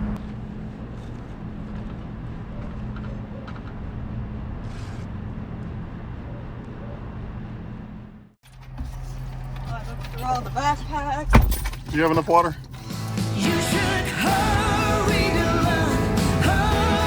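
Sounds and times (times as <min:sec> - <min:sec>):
low mechanical hum: 0:00.0 - 0:11.8.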